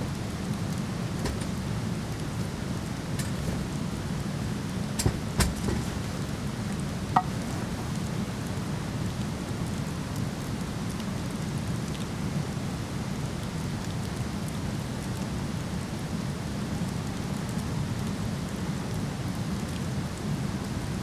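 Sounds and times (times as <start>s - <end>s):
wood fire crackling: 0.2s - 9.0s.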